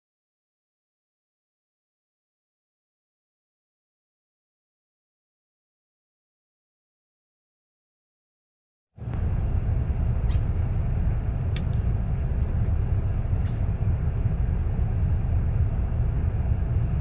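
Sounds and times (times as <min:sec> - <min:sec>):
steady low rumble: 0:09.0 - 0:17.0.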